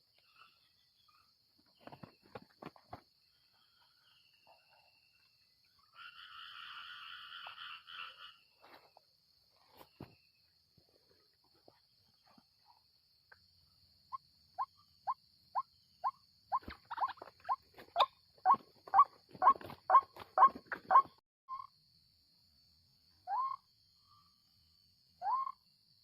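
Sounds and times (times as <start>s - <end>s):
clattering bird noises: 1.6s - 3.8s, 16.5s - 21.2s.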